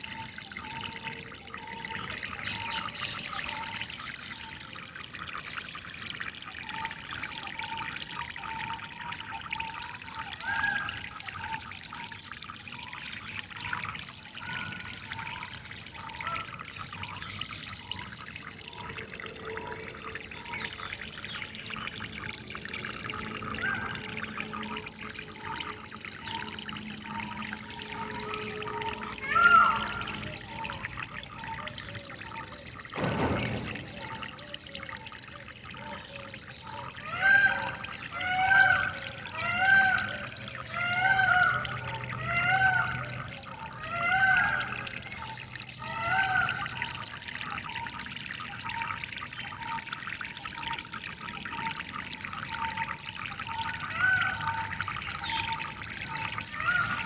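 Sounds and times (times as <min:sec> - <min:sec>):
water trickling over stones: 0:00.0 - 0:57.0
other bird calls: 0:29.2 - 0:32.5, 0:53.6 - 0:57.0.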